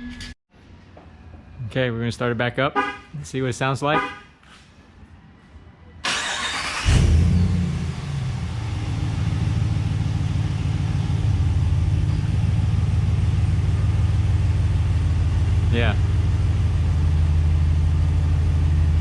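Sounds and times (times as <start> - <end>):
engine starter cranking: 6.0 - 7.4
truck engine idling: 6.1 - 19.0.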